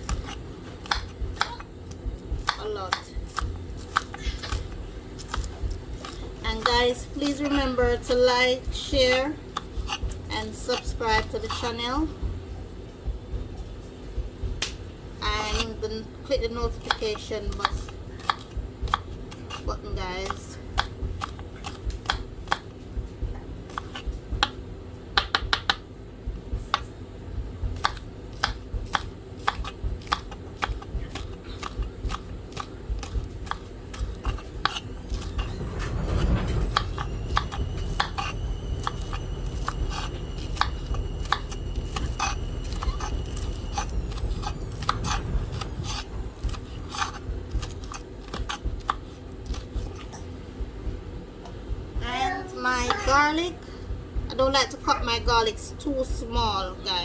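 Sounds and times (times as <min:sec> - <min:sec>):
knife chopping on cutting board: 0:00.0 - 0:08.3, 0:16.5 - 0:22.7, 0:23.7 - 0:24.6, 0:27.8 - 0:35.6, 0:36.7 - 0:50.1
low hum with thin whine: 0:00.0 - 0:57.0.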